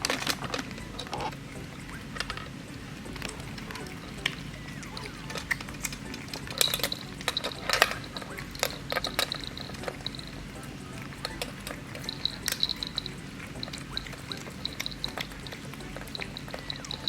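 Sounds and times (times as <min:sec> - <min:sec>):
cats chewing wet food: 0:00.0 - 0:17.0.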